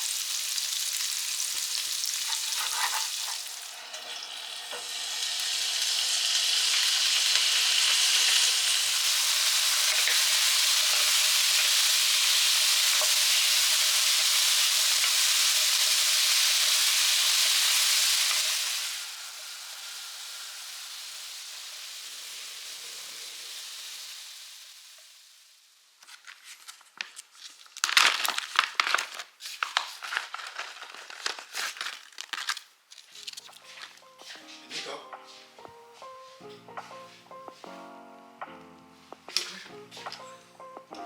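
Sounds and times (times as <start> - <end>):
food sizzling in a frying pan: 0.0 - 26.8.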